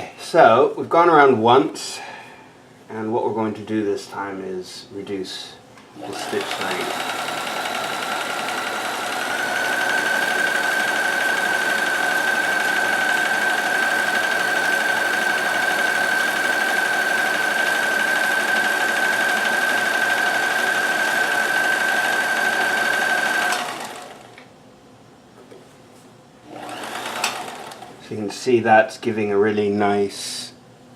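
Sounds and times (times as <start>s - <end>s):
sewing machine running: 6.0s - 24.4s, 26.5s - 28.0s.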